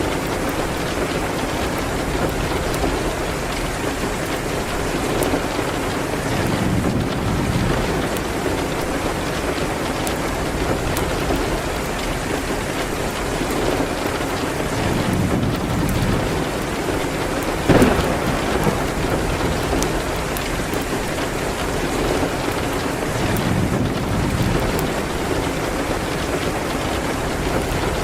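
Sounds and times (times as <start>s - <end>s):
steady rain: 0.0s - 28.0s
wood fire crackling: 0.0s - 28.0s
sharp crack: 17.7s - 21.2s.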